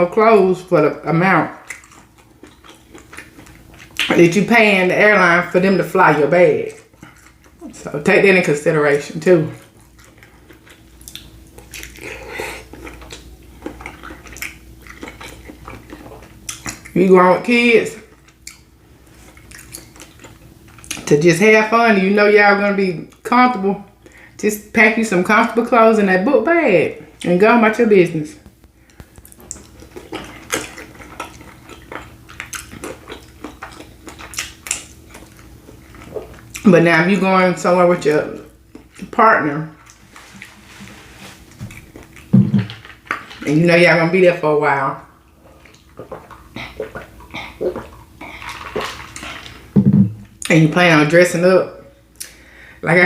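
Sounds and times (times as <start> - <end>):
wet squishes of food: 0.2 - 21.1, 28.4 - 44.4, 45.0 - 50.6
chewing: 1.5 - 4.2, 6.2 - 7.8, 9.5 - 17.0, 18.0 - 21.1, 28.4 - 36.7, 38.3 - 39.2, 39.8 - 43.5, 45.1 - 49.7.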